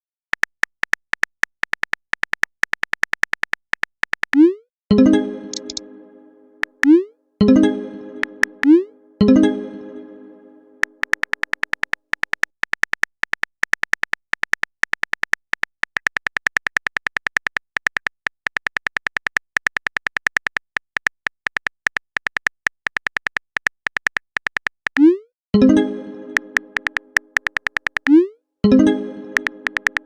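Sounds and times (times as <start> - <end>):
phone keyboard typing clicks: 0.3 - 4.6, 5.5 - 5.8, 6.6 - 7.0, 10.8 - 25.1, 26.3 - 30.0.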